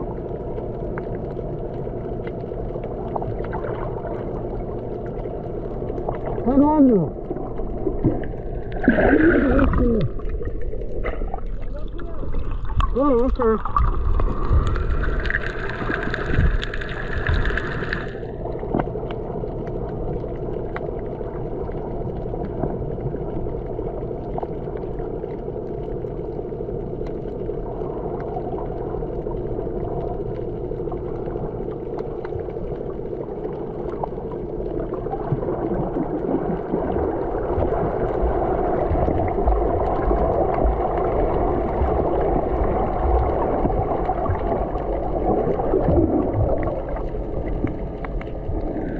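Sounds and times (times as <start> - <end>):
water rushing along a hull: 0.0 - 48.9
hissing splash: 8.7 - 11.4.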